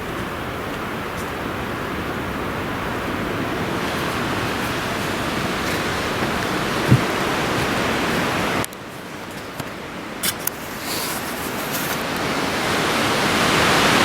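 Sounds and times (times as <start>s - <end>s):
strong wind blowing: 0.0s - 8.7s.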